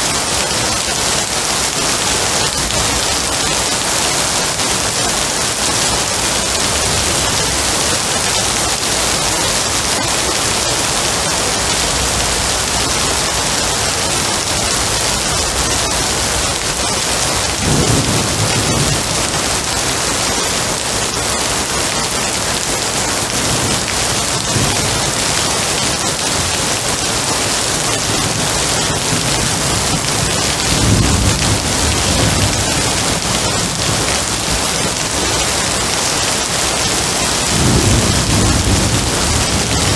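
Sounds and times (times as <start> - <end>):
heavy rain hissing: 0.0 - 39.9
thunder rumbling: 0.1 - 39.9.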